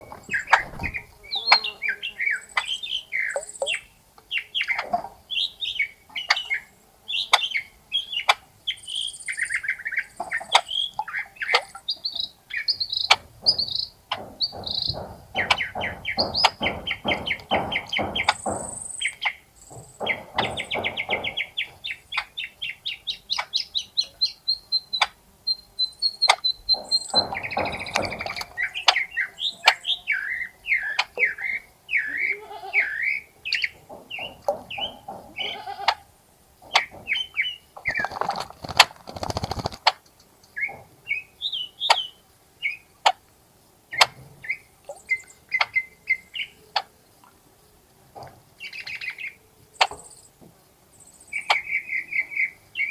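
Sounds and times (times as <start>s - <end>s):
water splashing: 0.0s - 1.4s, 37.8s - 39.9s
birds singing and chirping: 0.0s - 39.9s, 51.0s - 52.9s.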